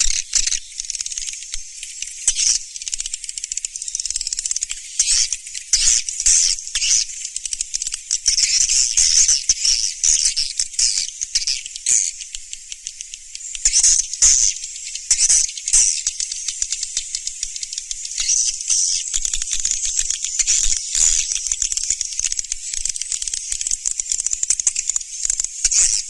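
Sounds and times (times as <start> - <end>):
swiftlet clicks and chirps: 0.0 - 26.0.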